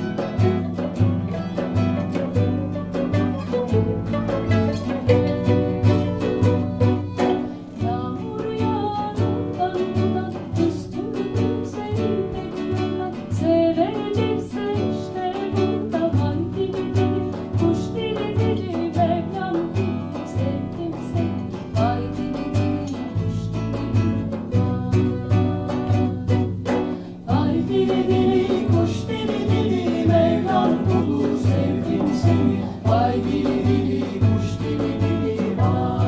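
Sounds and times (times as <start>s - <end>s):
sliding lead melody: 0.0s - 7.6s
mandolin: 0.0s - 36.0s
plucked acoustic guitar: 0.0s - 36.0s
pulsing bass: 27.3s - 36.0s.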